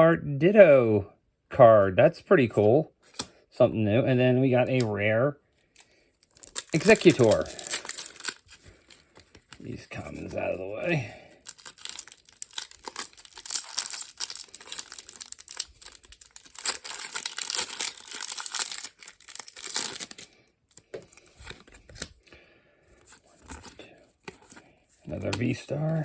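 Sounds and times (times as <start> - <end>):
cards clicking and rustling: 3.0 - 3.4, 5.7 - 10.5, 11.4 - 22.4, 23.0 - 26.0
foil wrapper crinkling and tearing: 5.7 - 22.3.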